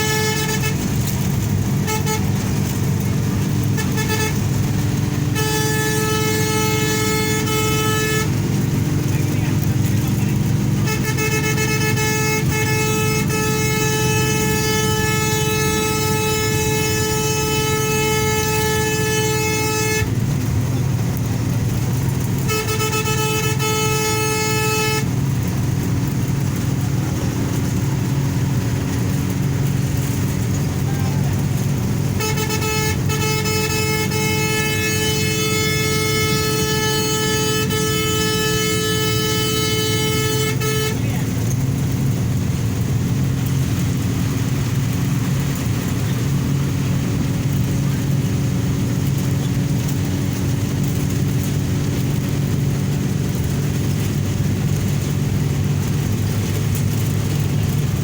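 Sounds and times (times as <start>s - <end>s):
vehicle horn blasts: 0.0s - 42.4s
highway traffic rumble: 0.0s - 58.0s.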